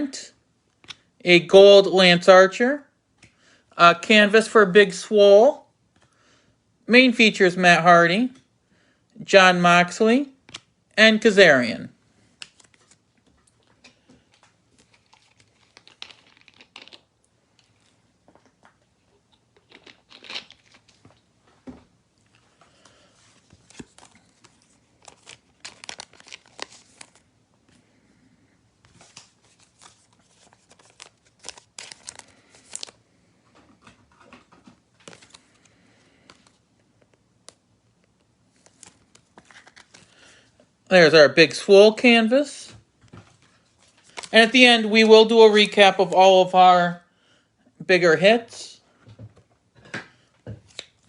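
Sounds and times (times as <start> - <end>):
plastic and cards crinkling: 12.2 - 21.3, 22.2 - 28.0, 28.8 - 40.8, 42.4 - 46.6, 50.2 - 51.0.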